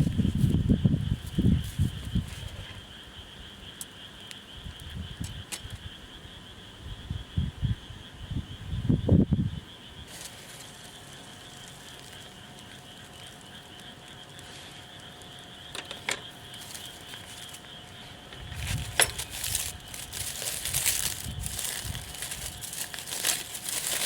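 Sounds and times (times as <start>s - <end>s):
rustling and handling noise: 0.0s - 2.8s, 10.1s - 13.8s, 14.4s - 24.0s
insects chirring: 0.0s - 24.0s.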